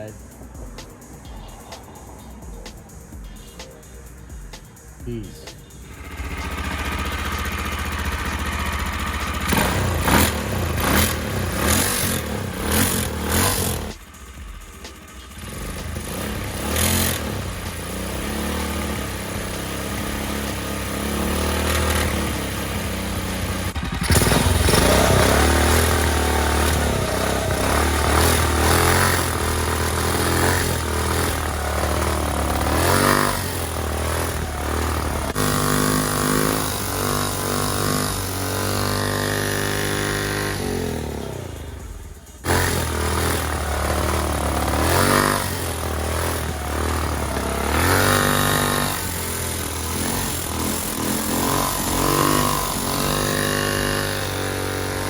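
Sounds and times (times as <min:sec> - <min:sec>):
small engine revving: 0:04.8 - 0:55.0.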